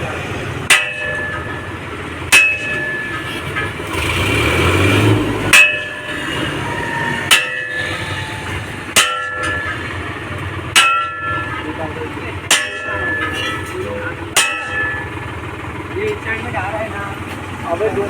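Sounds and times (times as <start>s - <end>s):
rough noise: 0.0s - 15.4s
hammer striking metal: 0.6s - 4.0s, 5.4s - 16.3s.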